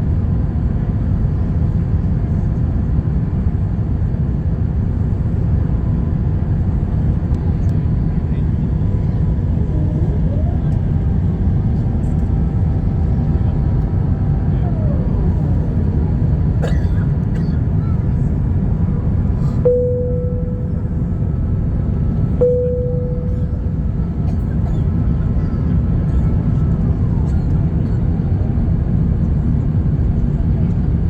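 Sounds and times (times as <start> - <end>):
airliner engine rumble: 0.0 - 31.0
faint whining tones: 17.3 - 26.7
short tones: 19.6 - 21.2, 22.4 - 24.0.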